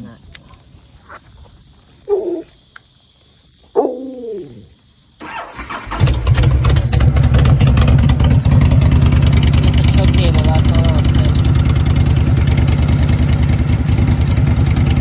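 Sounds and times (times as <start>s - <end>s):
motorcycle starter cranking: 5.2s - 15.0s
motorcycle engine running: 5.8s - 15.0s.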